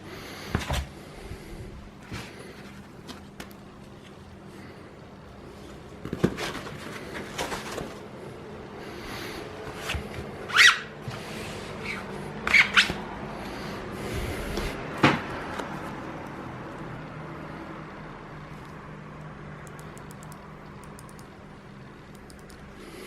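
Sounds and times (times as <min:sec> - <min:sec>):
packaging rustling: 0:05.9 - 0:08.2.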